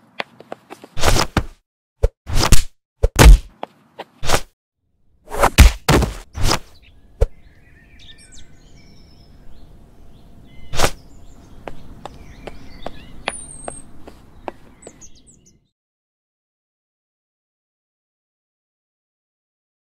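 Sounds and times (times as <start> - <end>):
sharp impact hits: 5.4 - 6.3
birds chirping: 6.6 - 15.7.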